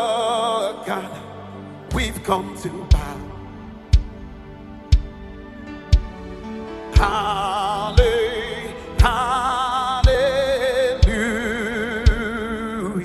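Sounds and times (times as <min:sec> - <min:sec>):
slow gospel melody: 0:00.0 - 0:13.0
deep drum hits: 0:06.0 - 0:06.4.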